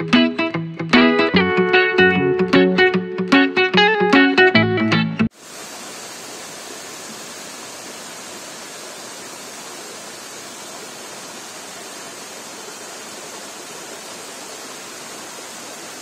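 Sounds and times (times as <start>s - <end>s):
waterfall and rushing stream: 5.3s - 16.0s.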